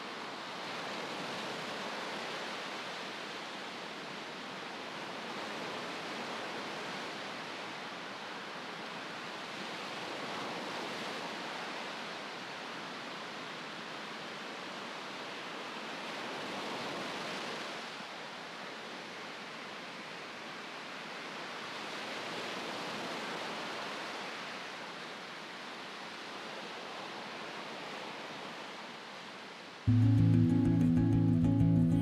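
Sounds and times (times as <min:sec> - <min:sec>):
ocean surf: 0:00.0 - 0:32.0
music: 0:29.9 - 0:32.0.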